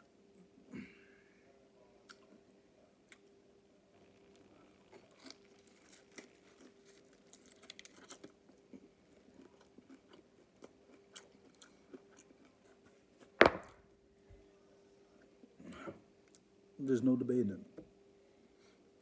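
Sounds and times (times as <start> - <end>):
person chewing crispy chicken: 4.1 - 13.4
loud sudden thump: 13.4 - 13.8.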